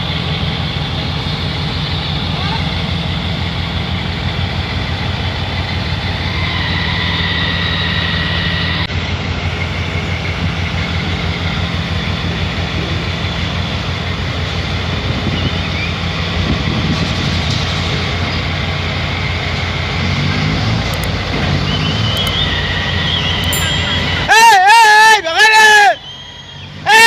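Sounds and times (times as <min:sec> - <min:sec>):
construction machinery engine hum: 0:00.0 - 0:27.0
faint high whine: 0:22.2 - 0:25.2.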